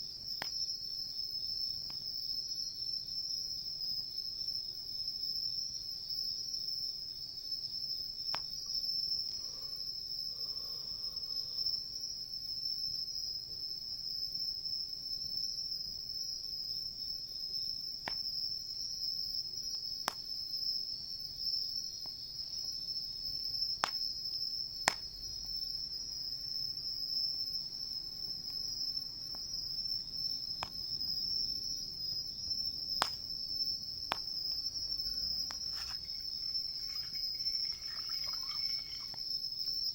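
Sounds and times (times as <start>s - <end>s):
crickets chirping: 0.0s - 39.9s
campfire popping and crackling: 32.5s - 39.4s.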